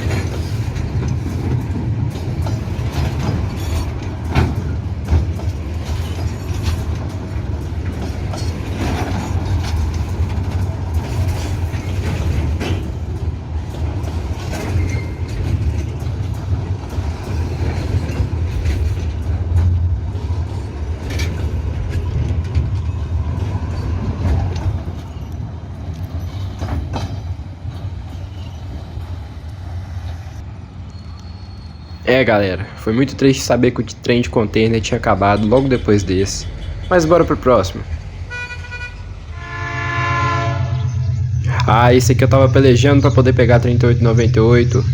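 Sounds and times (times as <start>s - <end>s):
clicks over rail joints: 0.0s - 28.8s
train wheels rumbling on rail: 0.0s - 44.9s
wheel squeals: 2.4s - 4.5s, 14.4s - 15.7s, 28.0s - 29.1s, 30.8s - 32.1s.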